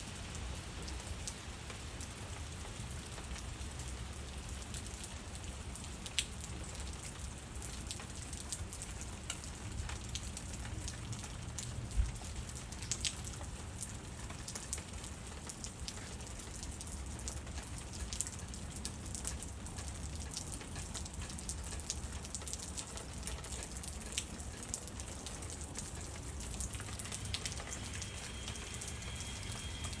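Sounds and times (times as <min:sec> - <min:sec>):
light rain patter: 0:00.0 - 0:30.0
raindrops striking: 0:00.2 - 0:30.0
steady low rumble: 0:26.8 - 0:30.0.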